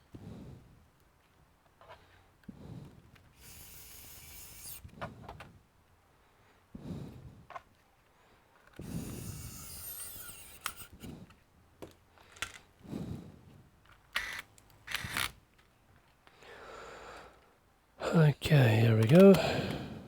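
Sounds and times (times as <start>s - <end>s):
rasping: 3.4s - 4.9s, 8.8s - 11.1s.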